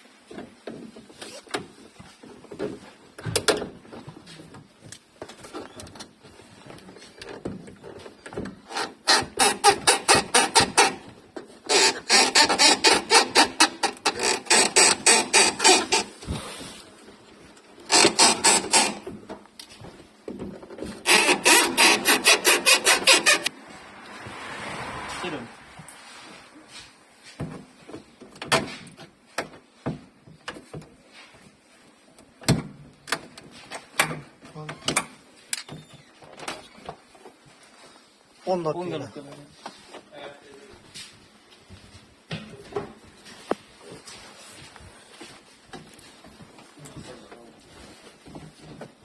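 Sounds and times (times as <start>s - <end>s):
hand tool rasping: 8.7s - 16.3s, 17.9s - 19.1s, 21.0s - 23.5s.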